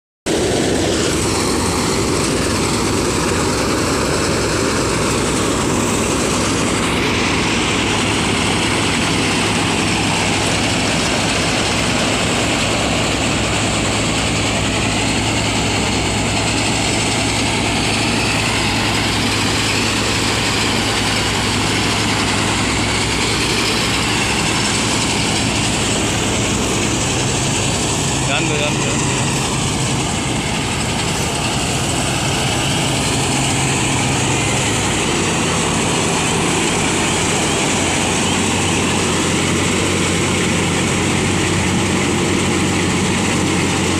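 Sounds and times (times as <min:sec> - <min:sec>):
harvester engine running: 0:00.3 - 0:43.9.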